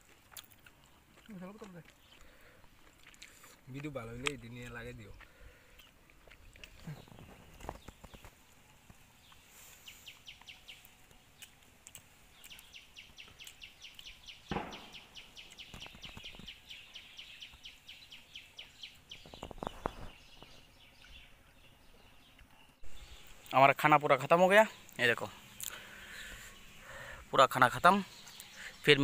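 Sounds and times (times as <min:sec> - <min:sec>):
bird rapid high chirps: 0:12.3 - 0:23.5
cluster of knocks: 0:14.5 - 0:15.0
dull thump: 0:14.5 - 0:15.1.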